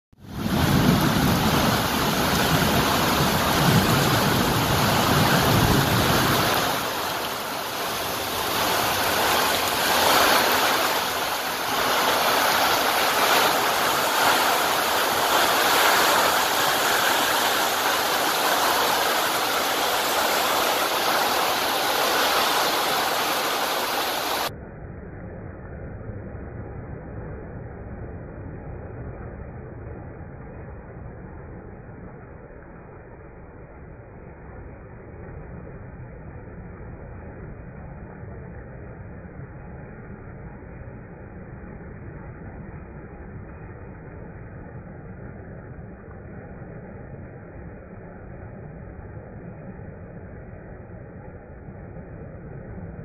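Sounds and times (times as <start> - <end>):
heavy rain on a tin roof: 0.2 - 24.5
low rumble: 0.2 - 53.0.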